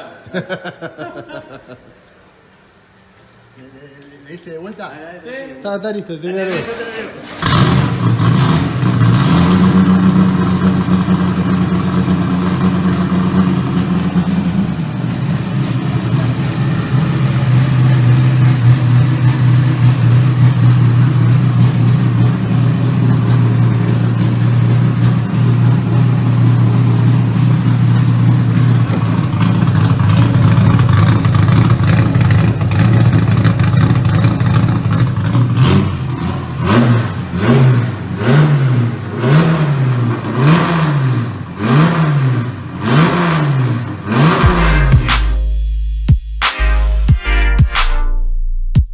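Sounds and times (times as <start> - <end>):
car engine revving: 7.3 - 46.8.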